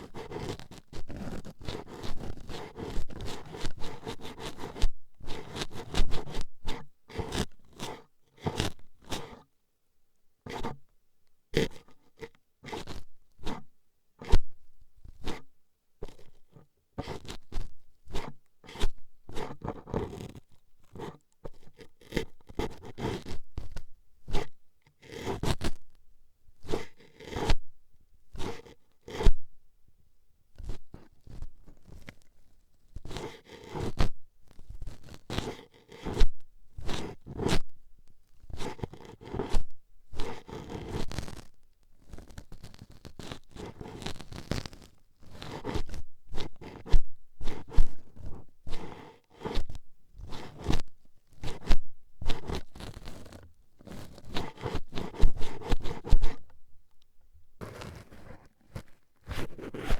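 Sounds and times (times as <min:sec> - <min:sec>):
toothpicks scraping microphone: 0:38.4 - 0:56.6, 0:57.6 - 0:59.9.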